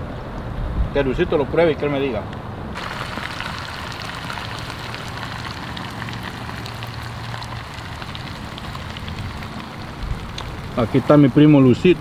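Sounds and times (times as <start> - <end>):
meat sizzling with crackling pops: 2.8 - 12.0.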